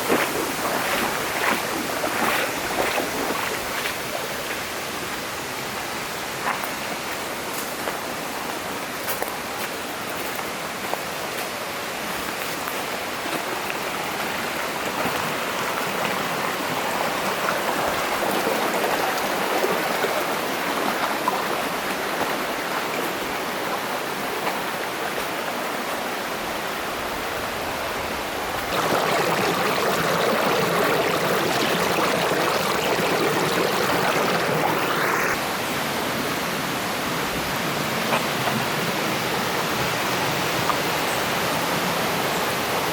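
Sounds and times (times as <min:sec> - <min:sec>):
water rushing over rocks: 0:00.0 - 0:06.1, 0:28.6 - 0:35.4.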